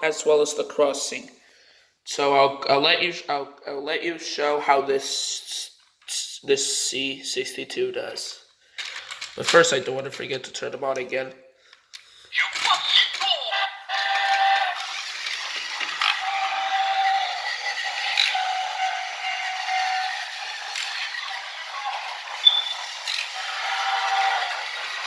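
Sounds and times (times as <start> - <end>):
train whistle tones: 22.4 - 24.6.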